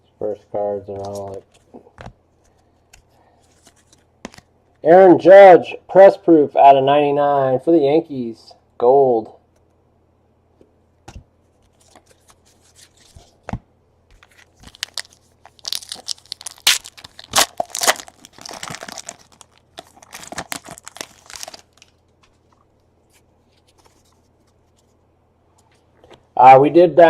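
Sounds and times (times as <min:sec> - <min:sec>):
wrapper tearing and crinkling: 0:14.2 - 0:22.0.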